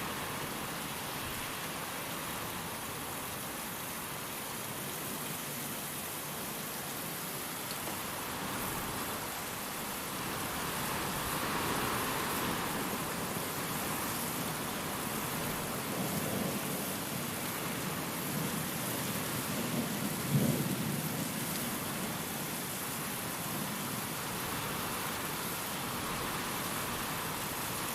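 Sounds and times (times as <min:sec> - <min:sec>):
steady rain: 0:00.0 - 0:27.9
wind gusts: 0:07.8 - 0:27.9.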